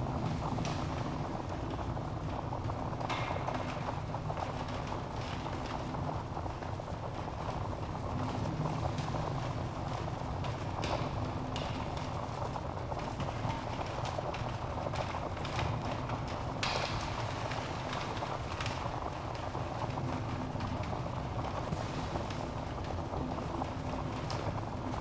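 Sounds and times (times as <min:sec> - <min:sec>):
low rumble of flames: 0:00.0 - 0:25.0
logs crackling and popping: 0:10.5 - 0:25.0.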